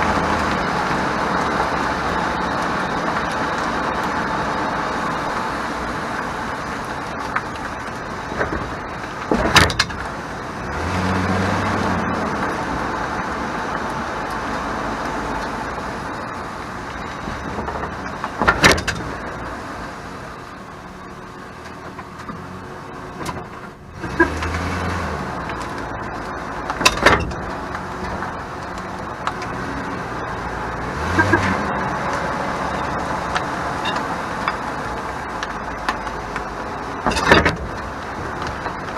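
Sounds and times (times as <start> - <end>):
road noise: 0.0 - 38.9
rattling clatters over bumps: 7.2 - 10.2, 17.2 - 19.4, 26.7 - 29.6, 35.4 - 38.9.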